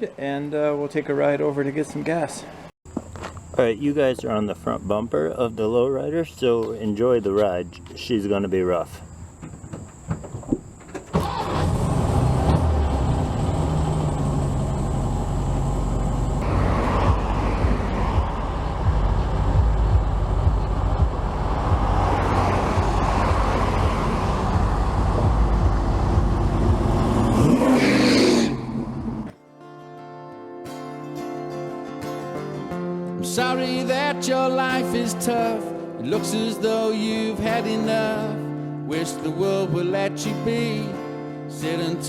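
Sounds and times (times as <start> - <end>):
engine and road rumble: 2.5 - 5.4, 8.8 - 29.3.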